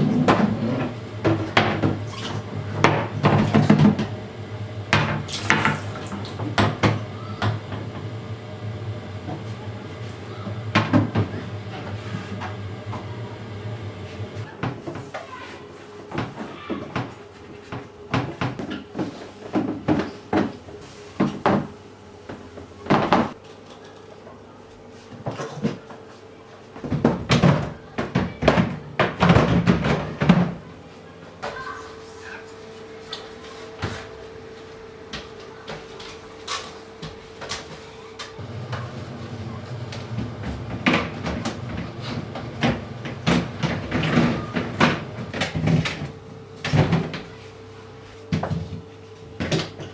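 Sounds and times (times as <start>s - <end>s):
steady hum: 0.0s - 14.5s
containers and shelves clattering: 0.0s - 15.1s, 36.6s - 47.4s.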